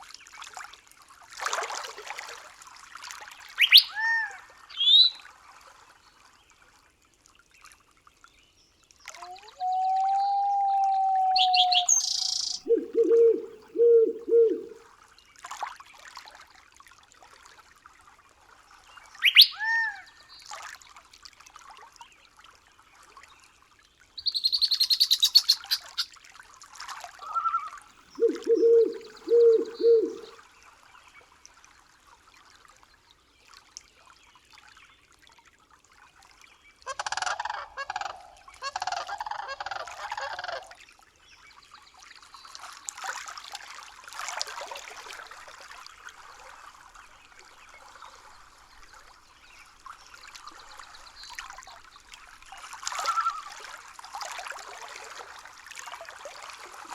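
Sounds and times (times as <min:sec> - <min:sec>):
bird chirps and trill: 0:03.6 - 0:05.2, 0:09.4 - 0:14.7, 0:19.2 - 0:19.8, 0:24.2 - 0:26.1, 0:28.2 - 0:30.3
loud ragged bird calls: 0:03.6 - 0:05.2, 0:09.4 - 0:14.8, 0:19.2 - 0:19.8, 0:24.2 - 0:26.1, 0:27.2 - 0:30.4
low hooting bird call: 0:03.6 - 0:05.2, 0:09.2 - 0:14.8, 0:19.2 - 0:20.0, 0:24.2 - 0:26.1, 0:27.2 - 0:30.4.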